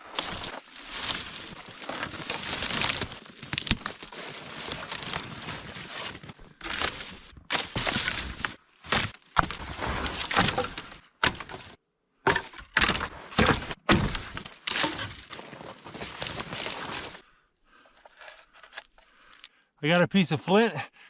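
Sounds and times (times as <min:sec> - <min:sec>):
dry sticks snapping: 0:00.0 - 0:05.2, 0:06.4 - 0:11.7, 0:12.3 - 0:15.4.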